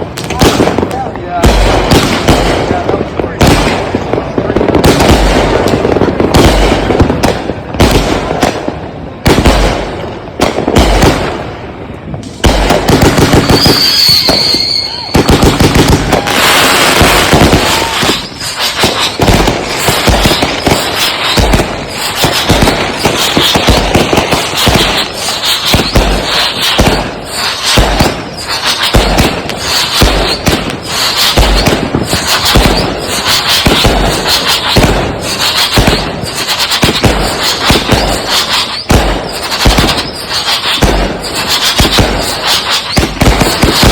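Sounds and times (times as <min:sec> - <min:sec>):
fireworks aerial bursts cracking: 0:00.0 - 0:43.9
fireworks launch thumps: 0:12.1 - 0:43.9
high firework whistle: 0:12.7 - 0:43.9.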